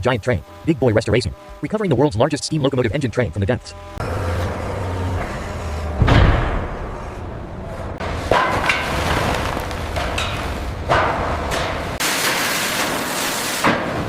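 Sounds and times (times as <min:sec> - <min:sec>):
low rumble: 0:04.0 - 0:12.0
sharp knocks and clanks: 0:05.2 - 0:13.0
heavy deep thud: 0:05.3 - 0:08.7.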